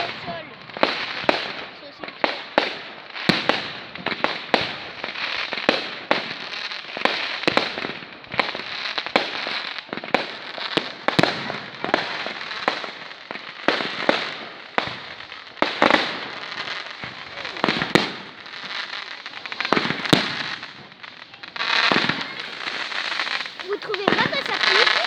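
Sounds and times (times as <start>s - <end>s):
fireworks crackling: 0.0s - 25.0s
fireworks bangs: 11.2s - 25.0s.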